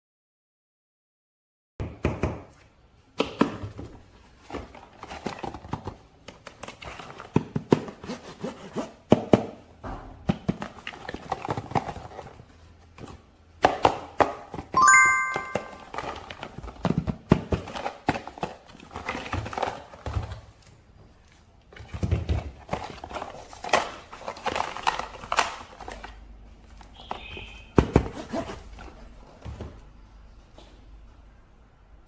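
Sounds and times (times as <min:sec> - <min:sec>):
plastic packaging rustling: 0:17.5 - 0:29.4.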